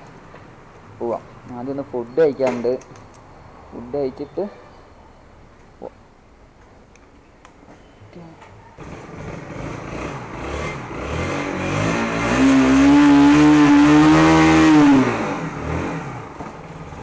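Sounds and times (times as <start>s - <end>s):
vehicle engine passing: 8.8s - 17.0s.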